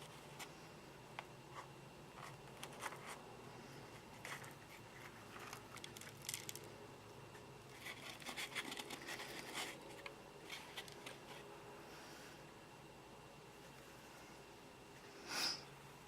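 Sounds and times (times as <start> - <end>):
crackly scratching and rustling: 0.0 - 11.6.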